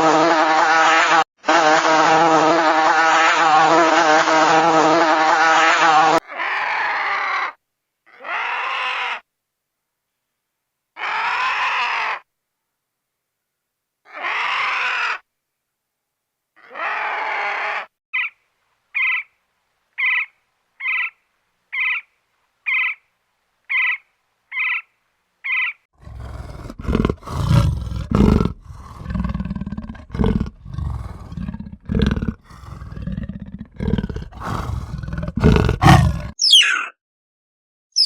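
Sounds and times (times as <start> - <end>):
deep rough animal roaring: 26.0 - 36.4
short high animal call: 35.8 - 37.0
squawk sliding in pitch: 35.8 - 37.0.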